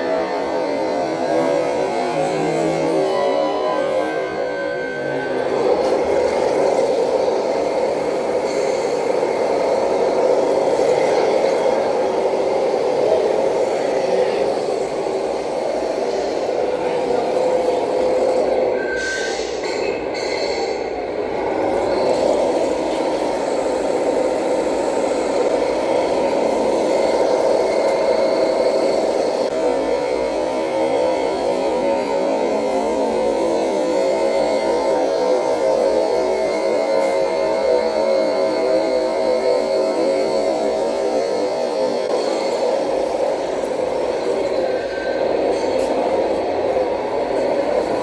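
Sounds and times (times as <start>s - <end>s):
model truck motor drone: 0.0s - 20.1s, 20.8s - 48.0s.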